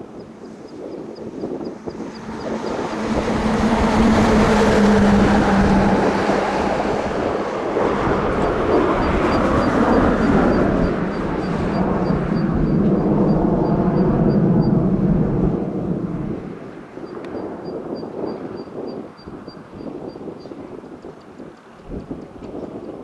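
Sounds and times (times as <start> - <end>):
jet aircraft roar: 1.2 - 17.4
low hum: 1.8 - 16.6.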